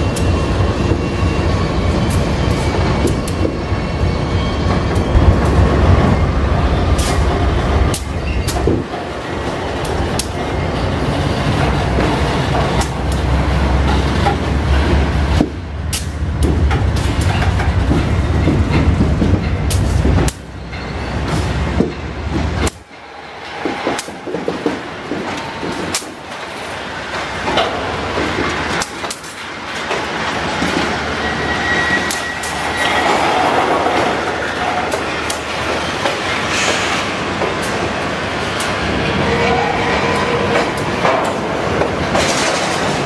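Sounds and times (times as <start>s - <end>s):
diesel locomotives rumbling: 0.0s - 43.0s
wheels clacking over rail joints: 4.6s - 43.0s
faint wheel squeal: 31.1s - 33.2s.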